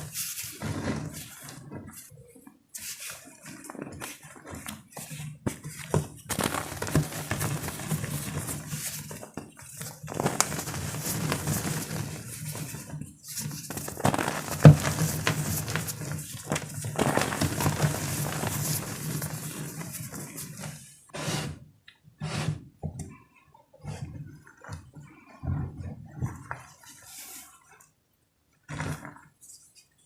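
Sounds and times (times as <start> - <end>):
chalk blocks crunching by hand: 13.7 - 19.8.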